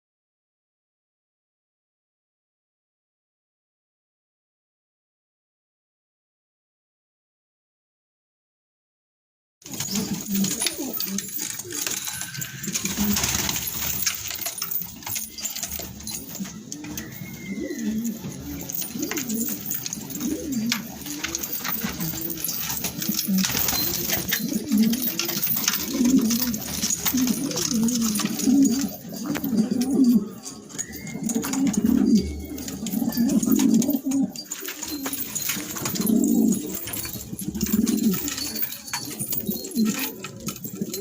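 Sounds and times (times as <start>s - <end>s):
pigeons cooing: 9.6s - 41.0s.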